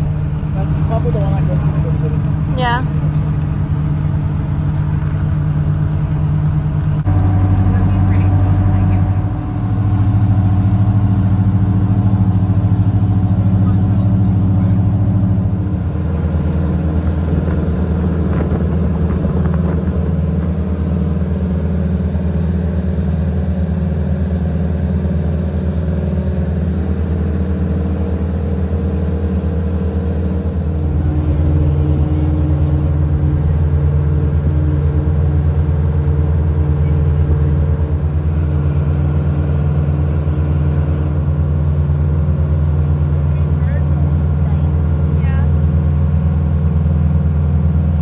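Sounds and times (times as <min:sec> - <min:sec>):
boat engine droning: 0:00.0 - 0:48.0.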